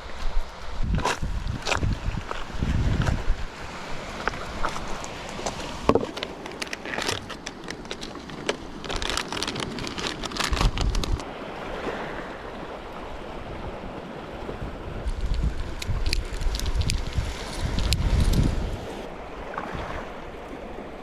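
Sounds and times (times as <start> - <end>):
wind on microphone: 0.0 - 6.1, 10.3 - 20.8
seawater splashing: 0.0 - 21.0.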